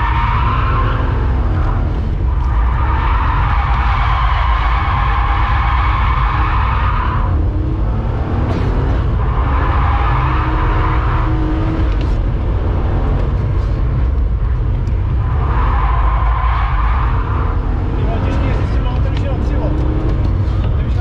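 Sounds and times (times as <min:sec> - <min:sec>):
tyres squealing: 0:00.0 - 0:07.3
car engine revving: 0:00.0 - 0:21.0.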